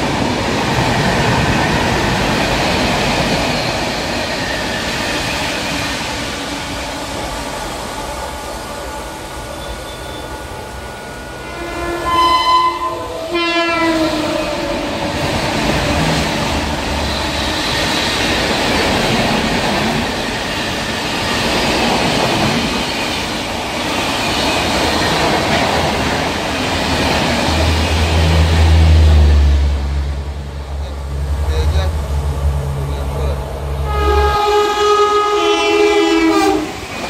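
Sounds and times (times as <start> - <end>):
train coaches rushing past: 0.0 - 37.0
train horn blasts: 11.0 - 15.4, 33.6 - 36.9.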